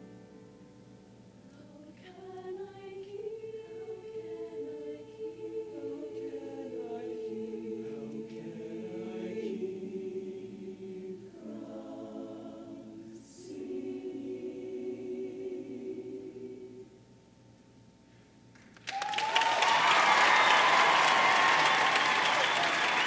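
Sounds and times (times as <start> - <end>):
choir singing in harmony: 1.6 - 17.0.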